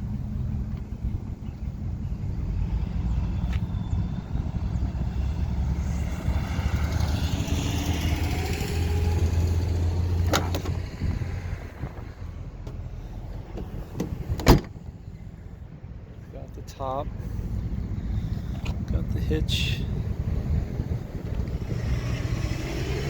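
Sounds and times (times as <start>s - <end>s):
pickup engine idling: 9.0s - 21.5s.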